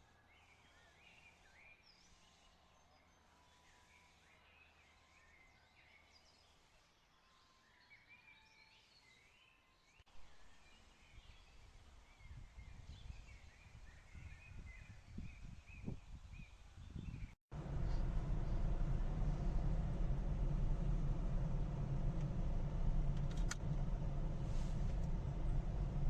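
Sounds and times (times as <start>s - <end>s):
irregular low rumble: 17.5s - 26.0s.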